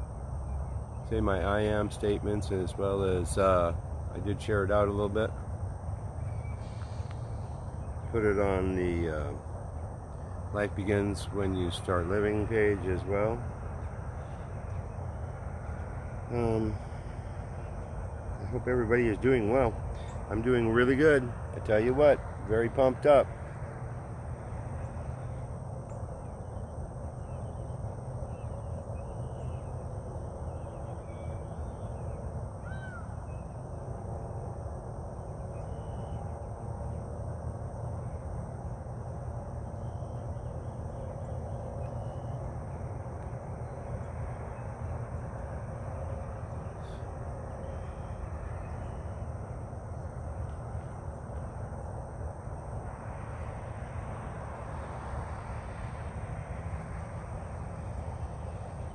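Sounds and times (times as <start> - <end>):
steady low rumble: 0.0 - 31.0
faint bird calls: 0.4 - 9.5, 10.1 - 23.7, 24.4 - 33.7, 35.2 - 36.5, 39.7 - 51.0.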